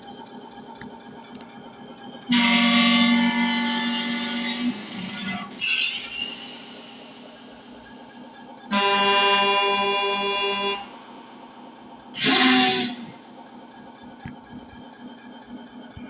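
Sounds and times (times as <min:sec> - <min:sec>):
truck air horn blasts: 0:02.3 - 0:04.9, 0:08.7 - 0:10.9, 0:12.2 - 0:13.2.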